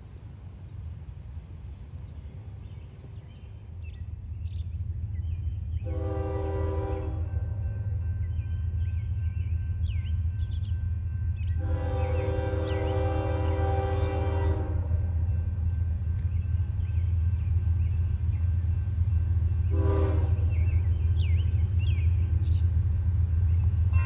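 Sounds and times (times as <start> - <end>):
low rumble of approaching train: 0.0 - 24.0
locomotive air horn blasts: 5.8 - 7.6, 11.5 - 15.2, 19.7 - 20.8.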